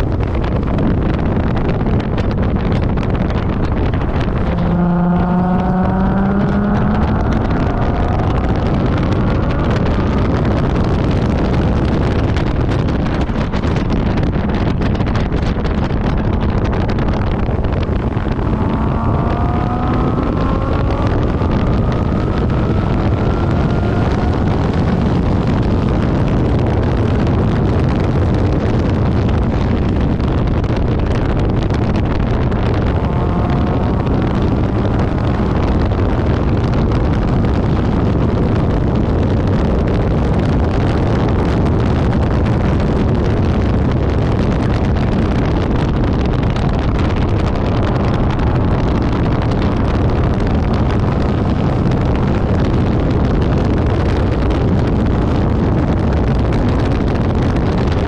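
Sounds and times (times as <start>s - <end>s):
car engine running hard: 0.0s - 58.0s
wind and road noise: 0.0s - 58.0s.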